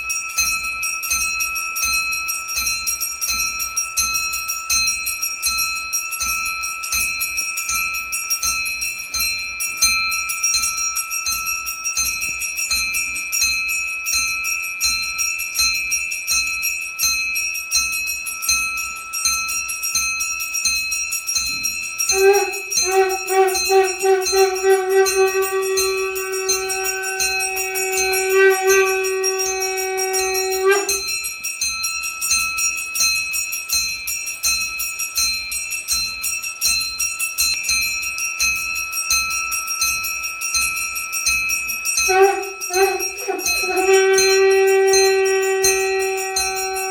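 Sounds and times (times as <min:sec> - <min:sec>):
hand bell ringing rapidly: 0:00.0 - 0:46.9
conch shell long note: 0:22.1 - 0:31.2, 0:42.1 - 0:46.9.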